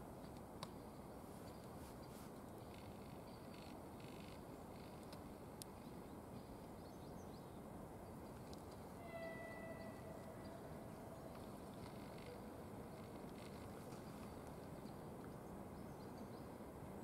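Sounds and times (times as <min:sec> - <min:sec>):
faint steady high tone: 0:06.3 - 0:13.0
distant freight train rumble: 0:07.6 - 0:13.3.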